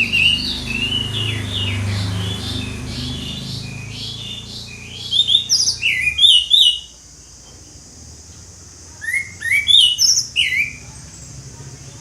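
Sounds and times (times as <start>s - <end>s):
thrush singing: 0.0s - 6.9s.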